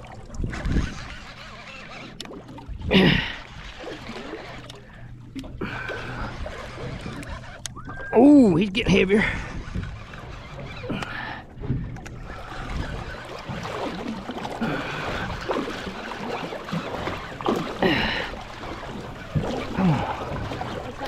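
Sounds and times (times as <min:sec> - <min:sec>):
water noise: 0:00.0 - 0:21.0
wind: 0:00.0 - 0:21.0.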